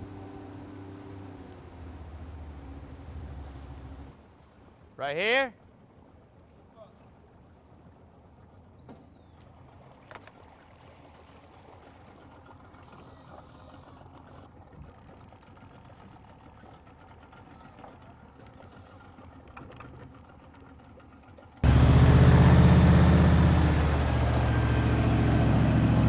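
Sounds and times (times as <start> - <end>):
boat engine idling: 0.0 - 4.2, 11.8 - 26.0.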